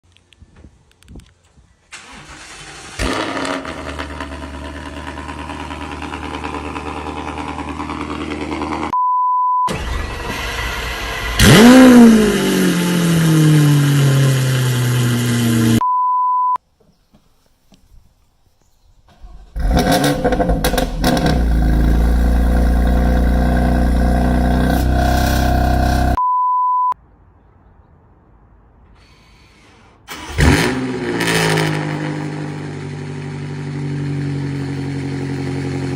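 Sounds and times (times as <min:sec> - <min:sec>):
engine starting and idling: 0:01.9 - 0:06.6, 0:09.7 - 0:12.0, 0:19.1 - 0:21.4, 0:30.1 - 0:30.9
short beep tones: 0:09.0 - 0:09.7, 0:15.8 - 0:16.6, 0:26.2 - 0:27.0.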